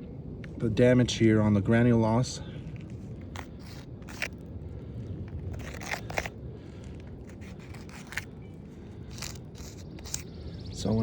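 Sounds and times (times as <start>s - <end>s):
low steady rumble: 0.0s - 11.0s
gritty scrapes on roof shingles: 2.8s - 4.5s, 5.2s - 8.4s, 9.0s - 10.3s.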